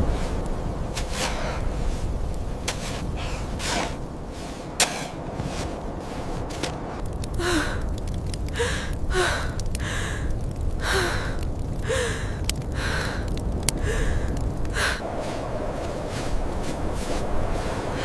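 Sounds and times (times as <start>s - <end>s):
low rumble of wind: 0.0s - 18.0s
person gasping: 7.4s - 7.9s, 8.5s - 15.0s.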